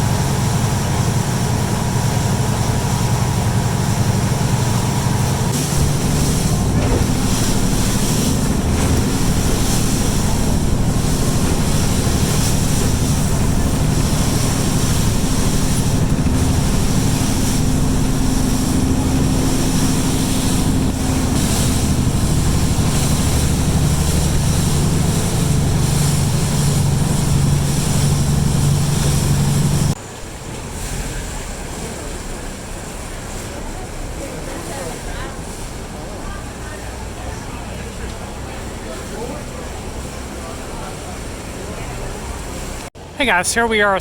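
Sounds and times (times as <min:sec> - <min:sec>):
boat diesel engine running: 0:00.0 - 0:44.0.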